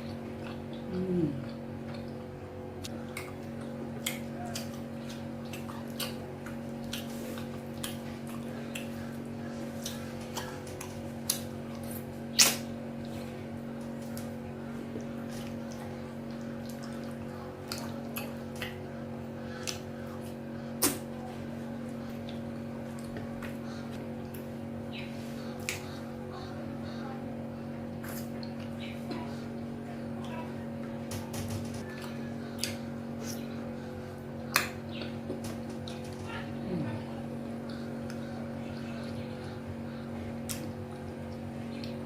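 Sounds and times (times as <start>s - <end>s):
wet chewing and swallowing: 0.0s - 21.2s
steady low hum: 0.0s - 42.0s.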